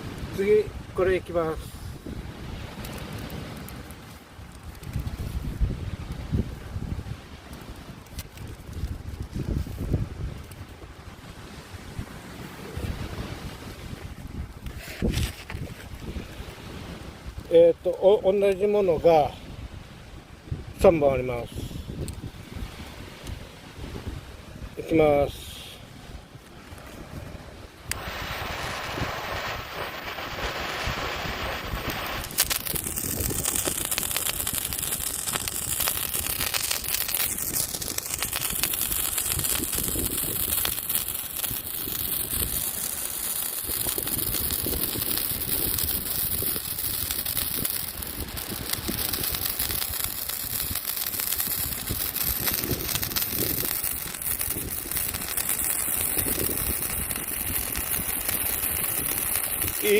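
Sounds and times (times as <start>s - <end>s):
faint firework crackle: 0.0s - 59.9s
spray firework hissing: 27.8s - 59.9s.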